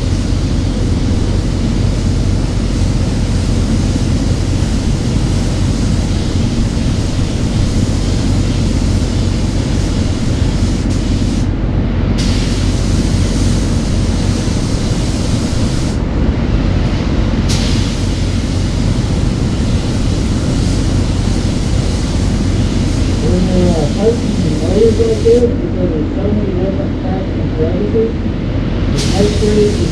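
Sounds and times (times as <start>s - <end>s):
spray gun hissing: 0.0s - 11.5s, 12.2s - 16.0s, 17.5s - 25.5s, 28.9s - 29.9s
low hum: 0.0s - 29.9s.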